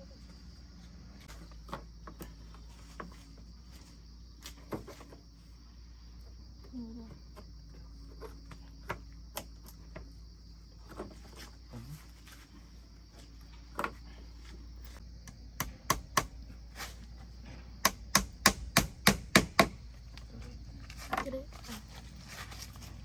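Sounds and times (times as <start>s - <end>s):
high insect drone: 0.0s - 23.0s
sharp knocks and taps: 17.8s - 19.8s.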